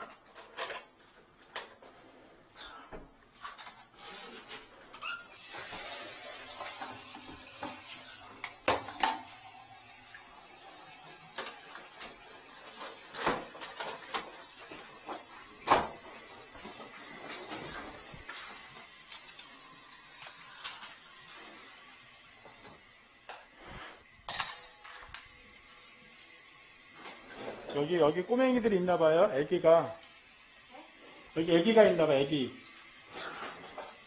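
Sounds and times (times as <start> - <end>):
objects knocking and clattering: 6.5 - 9.4, 11.3 - 18.3, 24.2 - 25.4.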